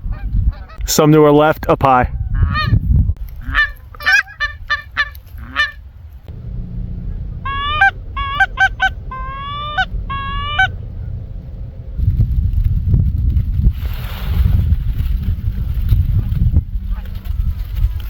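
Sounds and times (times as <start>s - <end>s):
low wind rumble: 0.0s - 18.0s
geese honking: 3.4s - 12.0s.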